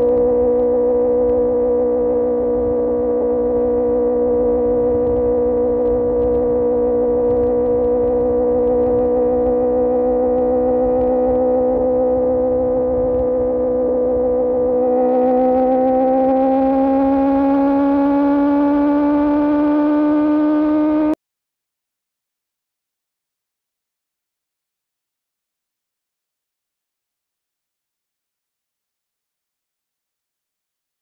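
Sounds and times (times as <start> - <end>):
motorcycle engine cruising: 0.0 - 21.2.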